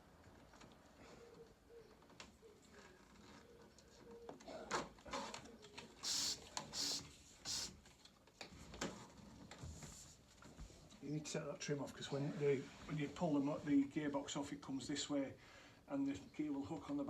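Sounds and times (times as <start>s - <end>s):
short scraping rasps: 6.0s - 7.7s.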